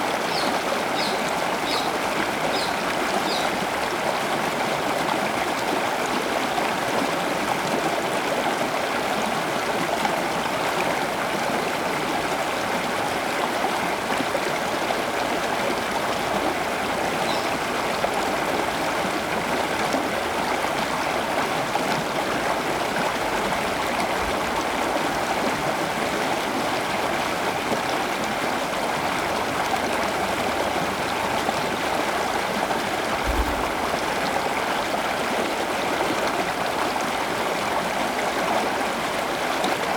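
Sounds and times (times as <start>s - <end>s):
running water rushing: 29.5s - 36.0s.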